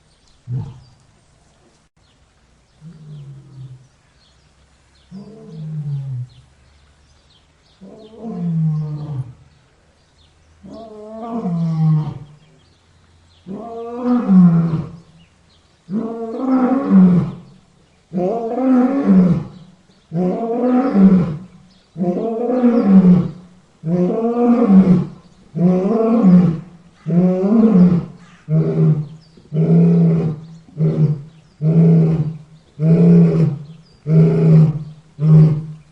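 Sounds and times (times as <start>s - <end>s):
lion roaring: 0.5s - 1.0s, 18.1s - 35.8s.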